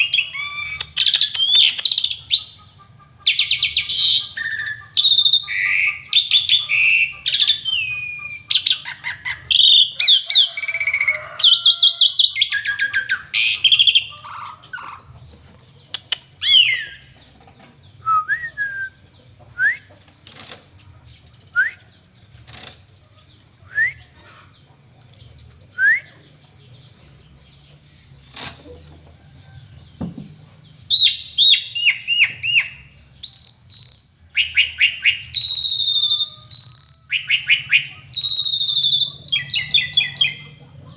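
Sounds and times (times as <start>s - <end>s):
starling singing: 0.0s - 19.9s, 30.6s - 40.9s.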